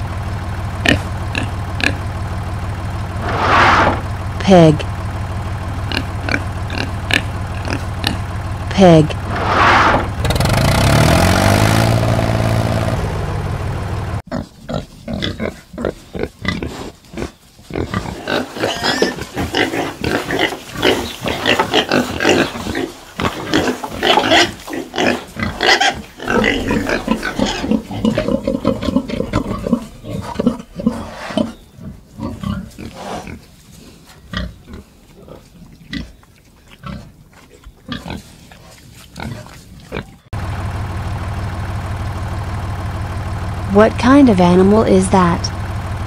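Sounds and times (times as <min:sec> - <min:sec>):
engine idling: 0:00.0 - 0:09.4, 0:10.0 - 0:14.2, 0:40.3 - 0:46.0
pigs grunting: 0:00.7 - 0:02.2, 0:03.1 - 0:11.8, 0:14.3 - 0:40.3.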